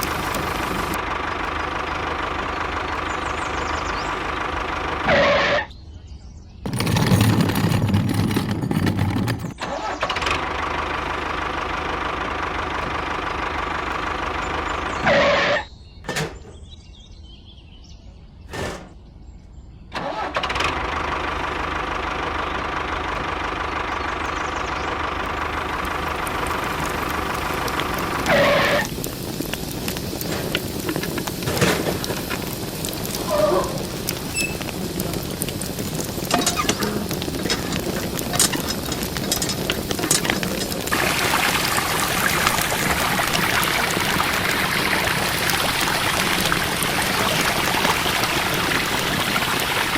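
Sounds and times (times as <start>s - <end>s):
small machine motor humming: 0.0s - 5.4s.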